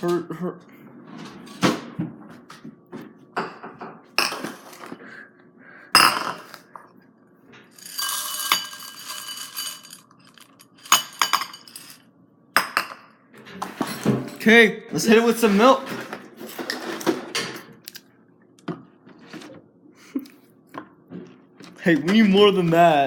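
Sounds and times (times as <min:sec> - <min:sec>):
dishes clinking: 0:03.3 - 0:04.9, 0:10.6 - 0:12.0, 0:12.6 - 0:14.4
cereal poured into bowl: 0:07.8 - 0:10.7.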